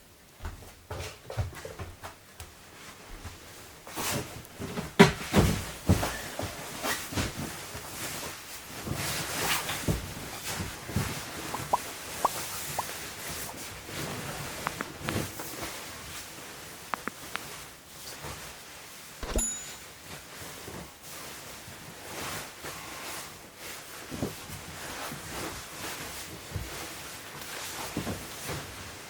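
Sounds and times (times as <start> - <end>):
knock with metallic ring: 19.2 - 19.8.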